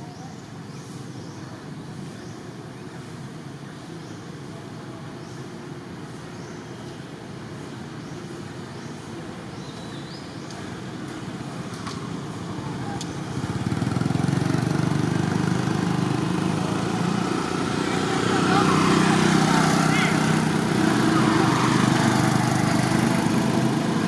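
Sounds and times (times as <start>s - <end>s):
vehicle engine running: 13.2s - 24.0s.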